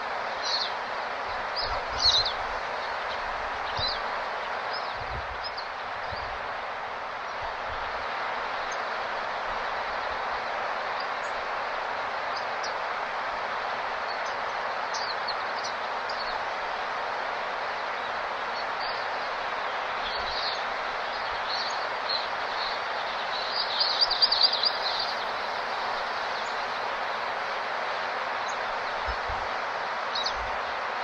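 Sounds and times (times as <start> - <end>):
small birds chirping: 1.4 - 6.3, 18.6 - 27.3.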